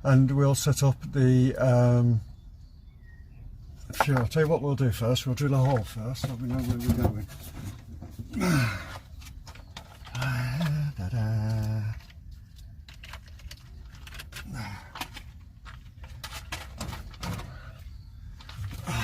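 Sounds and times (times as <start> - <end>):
man humming: 10.1 - 12.0.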